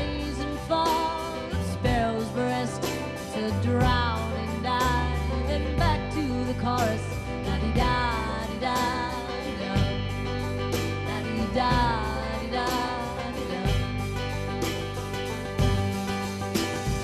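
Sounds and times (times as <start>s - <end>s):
person singing: 0.0s - 14.2s
guitar: 0.0s - 17.0s
sustained bass: 0.0s - 17.0s
steady beat: 13.7s - 17.0s.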